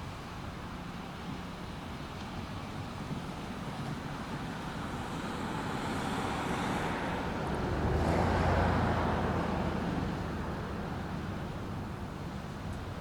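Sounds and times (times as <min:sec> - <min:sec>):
road vehicle passing: 0:04.2 - 0:13.0.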